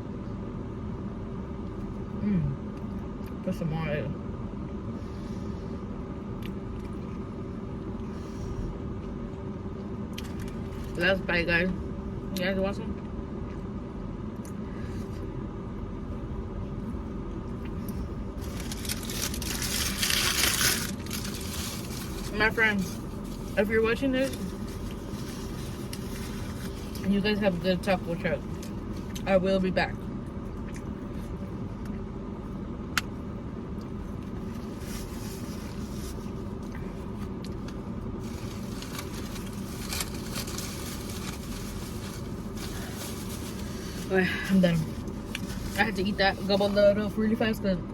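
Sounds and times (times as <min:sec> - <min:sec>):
car interior hum: 0:00.0 - 0:47.9
vehicle engine rumbling: 0:00.0 - 0:47.9
loud crackling rustling noise: 0:17.8 - 0:27.2, 0:34.0 - 0:46.5
person chewing food: 0:30.5 - 0:32.0.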